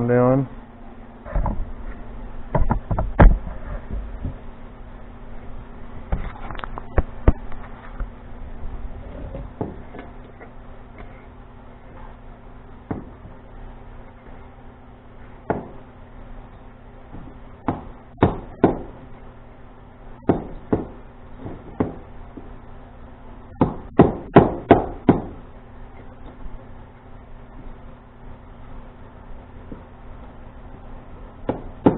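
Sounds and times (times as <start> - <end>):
hard knocks and taps on metal: 12.9 - 13.2.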